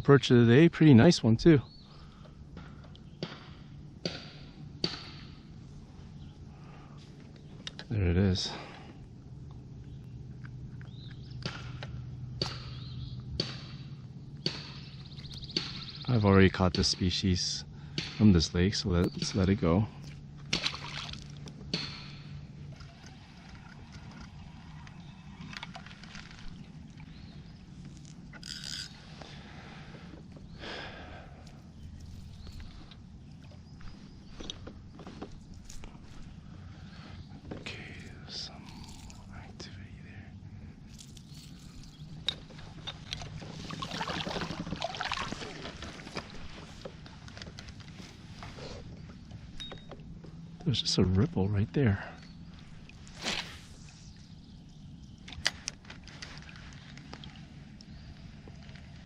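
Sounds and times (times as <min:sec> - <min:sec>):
water splashing beside kayak: 0:42.4 - 0:47.7.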